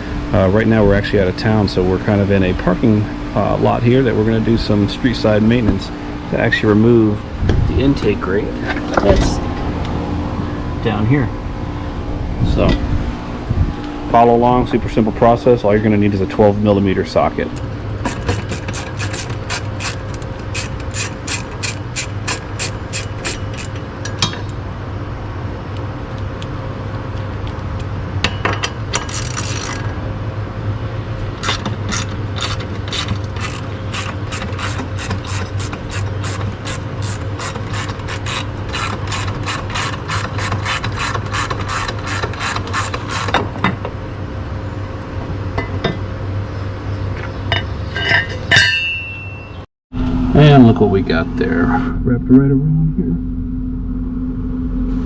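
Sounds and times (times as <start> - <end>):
steady low hum: 0.0 - 49.0, 50.0 - 55.0
socket ratchet clicking: 18.0 - 23.8, 31.4 - 43.4.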